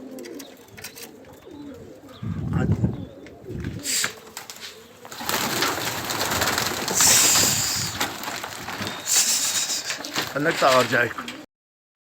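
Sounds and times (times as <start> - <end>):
pigeons cooing: 0.0 - 11.5
rushing crackling noise: 3.7 - 11.4.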